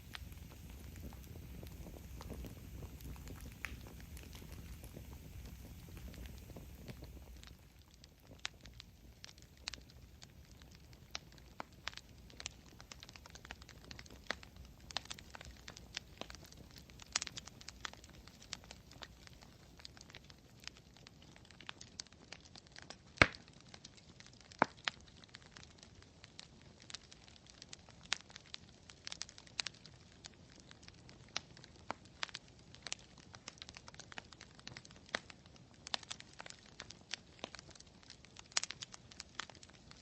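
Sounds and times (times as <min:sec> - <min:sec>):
faint low hiss: 0:00.0 - 0:21.9
campfire crackling and popping: 0:00.0 - 0:40.0.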